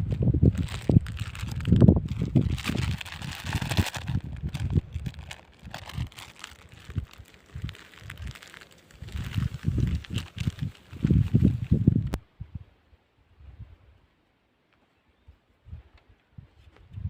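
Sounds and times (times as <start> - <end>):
wind rumble on microphone: 0.0 - 14.1, 15.2 - 17.0
plastic bag rustling: 0.5 - 12.1.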